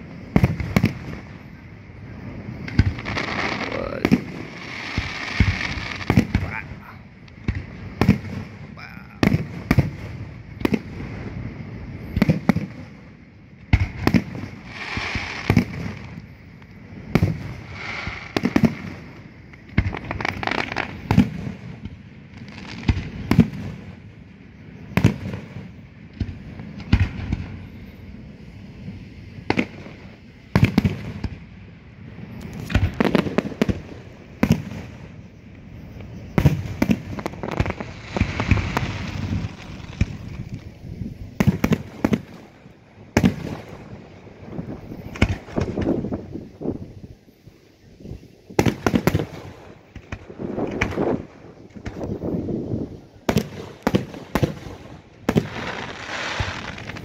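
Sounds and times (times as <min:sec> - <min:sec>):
firework shells bursting: 0:02.6 - 0:11.3, 0:32.3 - 0:46.7, 0:48.5 - 0:57.0.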